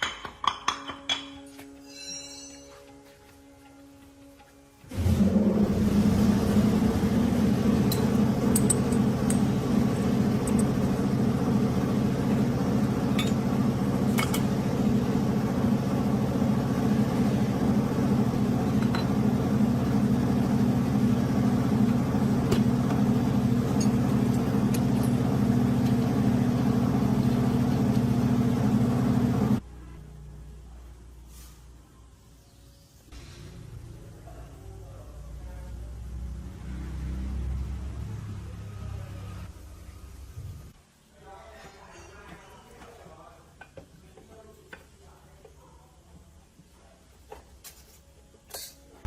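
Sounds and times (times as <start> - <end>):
machine humming: 4.8 - 29.6.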